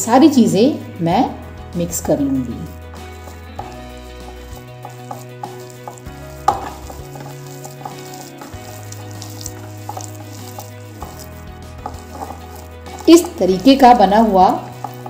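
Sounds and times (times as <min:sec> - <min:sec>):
soft background music: 0:00.0 - 0:15.0
hands kneading sticky food: 0:03.0 - 0:15.0.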